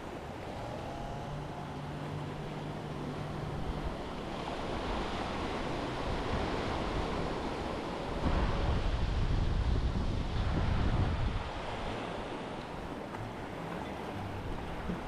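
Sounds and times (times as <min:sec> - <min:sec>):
surf washing onto beach: 0:00.0 - 0:15.0.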